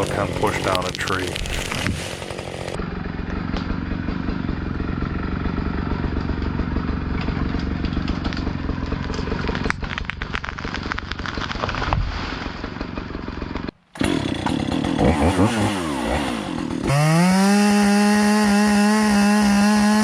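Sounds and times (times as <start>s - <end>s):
chainsaw idling and revving: 0.0s - 11.7s, 12.5s - 20.0s
crackling and clattering: 7.2s - 12.8s.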